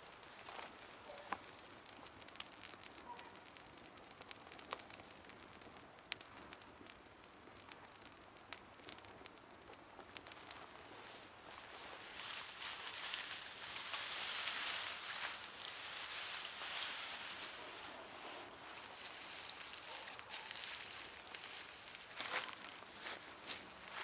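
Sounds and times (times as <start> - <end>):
campfire crackling and popping: 0.0 - 24.0.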